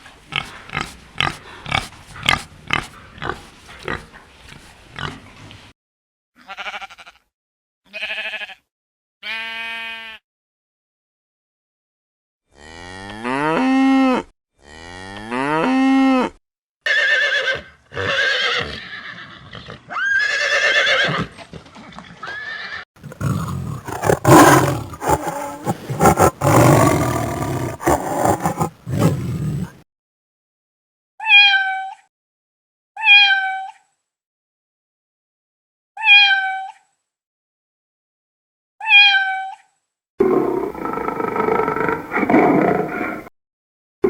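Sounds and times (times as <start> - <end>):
animal roaring: 23.0 - 29.8, 40.2 - 43.3
higher animal calls: 23.0 - 29.8.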